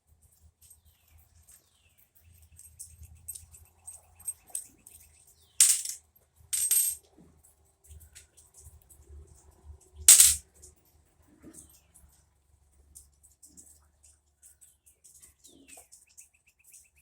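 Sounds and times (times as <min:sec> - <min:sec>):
small tools clicking and tapping: 0:05.6 - 0:06.0, 0:10.1 - 0:10.8.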